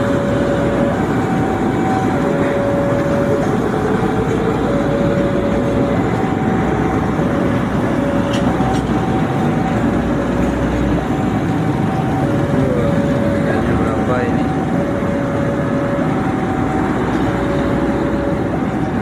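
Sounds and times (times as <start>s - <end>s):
loud train rumble: 0.0s - 19.0s
two-tone warning signal: 0.0s - 19.0s.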